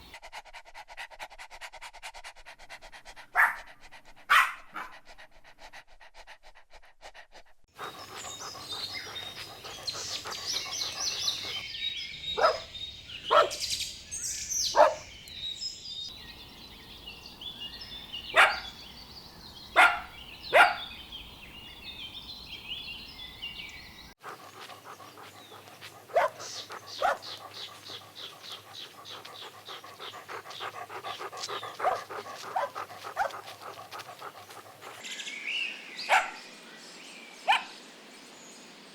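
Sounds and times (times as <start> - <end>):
dogs panting: 0.0 - 15.2, 17.9 - 22.1, 23.5 - 35.1
dogs barking: 3.3 - 5.0, 7.8 - 13.9, 14.5 - 15.2, 18.1 - 18.8, 19.6 - 21.0, 24.2 - 35.0, 36.1 - 36.4, 37.5 - 37.8.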